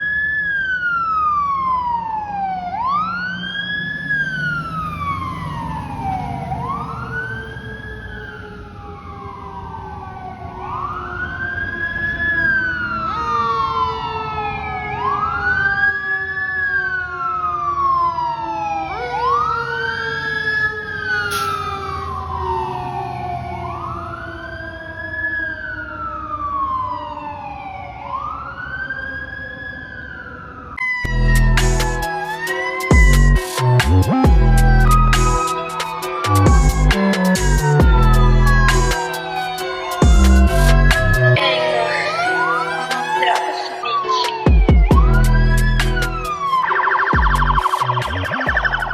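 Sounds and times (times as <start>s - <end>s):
second siren sweeping: 0.0s - 48.9s
siren wailing: 0.0s - 48.9s
truck engines rumbling: 2.4s - 13.4s, 17.8s - 26.7s, 30.8s - 48.9s.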